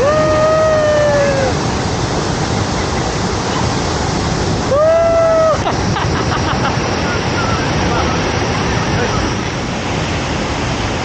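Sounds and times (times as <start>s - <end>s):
waterfall and river rushing: 0.0s - 11.0s.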